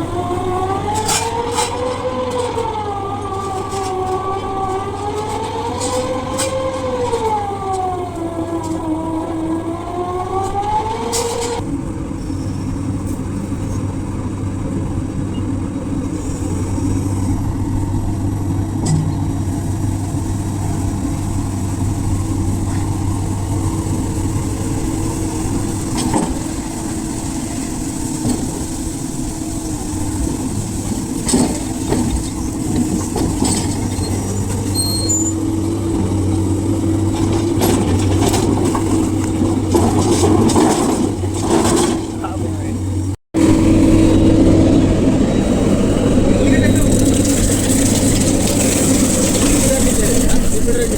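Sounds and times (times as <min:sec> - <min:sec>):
wavering siren-like tone: 0:00.0 - 0:11.6
excavator diesel engine running: 0:00.0 - 0:50.9
knocks and clanks: 0:18.6 - 0:26.7, 0:31.2 - 0:43.9.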